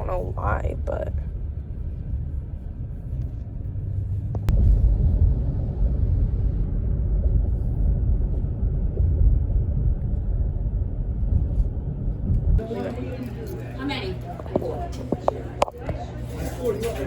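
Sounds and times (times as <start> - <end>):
steady low rumble: 0.0 - 16.3.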